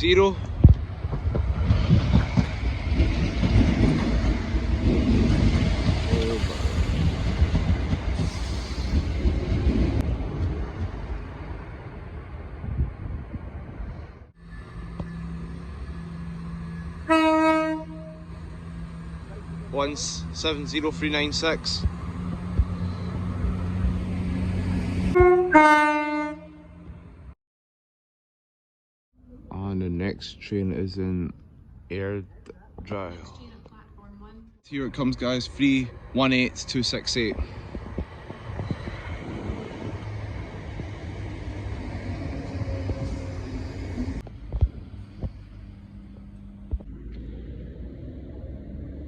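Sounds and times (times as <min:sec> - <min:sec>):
train diesel engines running: 0:00.0 - 0:27.3, 0:33.7 - 0:49.0
two-tone train horn: 0:14.5 - 0:18.4, 0:25.1 - 0:26.9.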